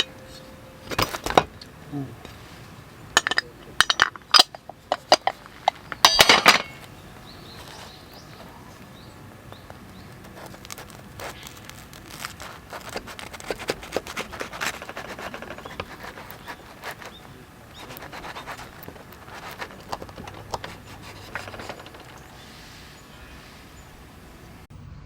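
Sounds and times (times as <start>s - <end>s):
metal cookware clinking: 3.1s - 6.9s, 14.8s - 22.4s.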